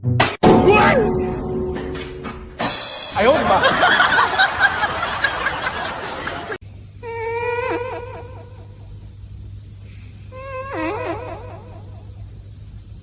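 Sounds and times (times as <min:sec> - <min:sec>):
people laughing: 0:03.3 - 0:06.6.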